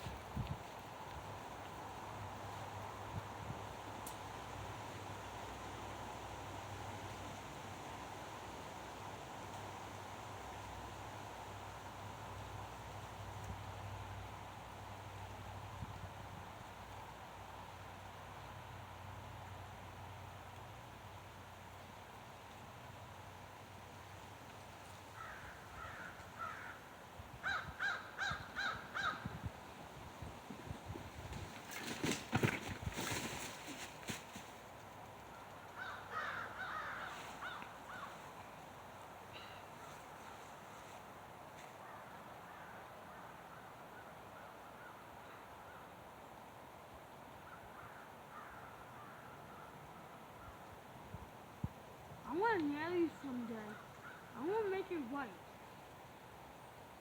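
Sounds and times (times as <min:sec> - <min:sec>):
low background hiss: 0:00.0 - 0:57.0
faint bird calls: 0:25.1 - 0:29.4, 0:35.3 - 0:38.6, 0:39.2 - 0:40.8, 0:47.4 - 0:50.7, 0:53.2 - 0:54.9.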